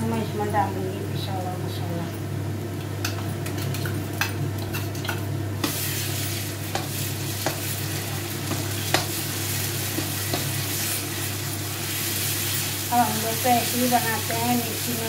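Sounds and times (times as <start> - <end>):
onions sizzling in hot oil: 4.5 - 15.0
ladle stirring and scraping pan: 4.7 - 12.8.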